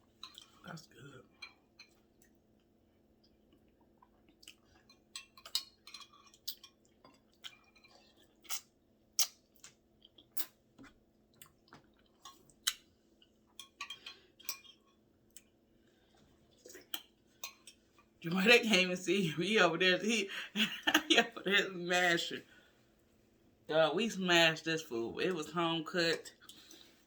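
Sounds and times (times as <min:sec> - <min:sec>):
person chewing food: 0:00.0 - 0:00.6, 0:01.4 - 0:18.2.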